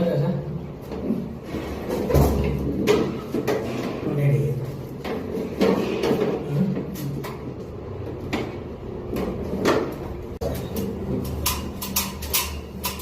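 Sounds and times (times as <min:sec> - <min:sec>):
clicks and knocks of hard objects: 0:04.9 - 0:13.0.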